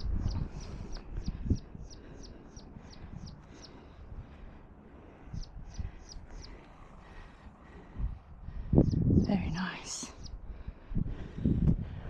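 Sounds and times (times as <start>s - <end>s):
small bird singing: 0.0s - 4.0s, 5.2s - 6.8s, 8.7s - 10.4s.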